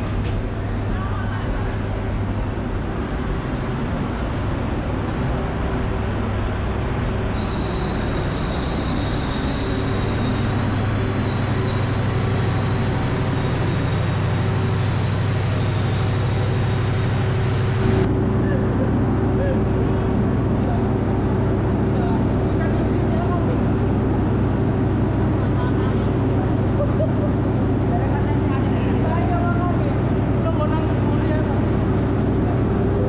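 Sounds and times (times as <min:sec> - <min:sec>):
train diesel engine humming: 0:00.0 - 0:33.0
thin high whine: 0:07.2 - 0:18.6.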